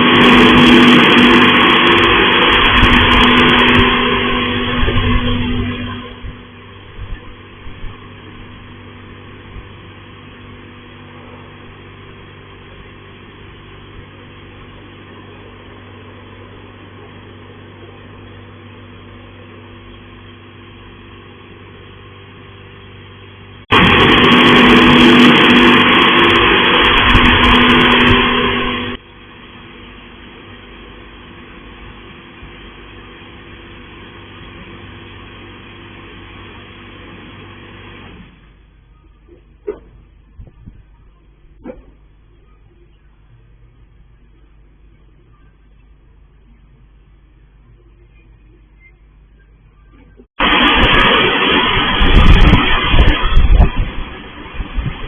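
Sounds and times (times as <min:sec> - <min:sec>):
wash jets rushing blast: 0:00.0 - 0:16.0, 0:23.7 - 0:38.4, 0:50.4 - 0:55.0
motor hum: 0:00.0 - 0:55.0.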